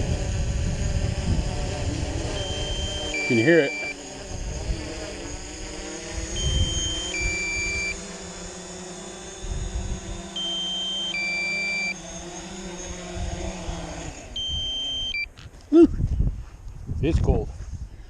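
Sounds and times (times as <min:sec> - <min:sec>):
wind on microphone: 0:00.0 - 0:03.2, 0:04.3 - 0:08.0, 0:09.2 - 0:10.4, 0:12.6 - 0:14.8, 0:15.4 - 0:18.0
drone propellers humming: 0:00.0 - 0:15.4
two-tone electronic alert: 0:02.3 - 0:04.0, 0:06.3 - 0:08.0, 0:10.3 - 0:12.0, 0:14.4 - 0:15.3.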